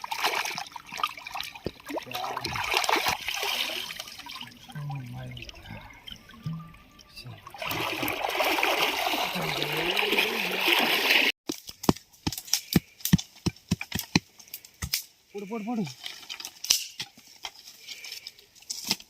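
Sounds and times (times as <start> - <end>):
water pouring and splashing: 0.0 - 11.4, 15.8 - 18.1.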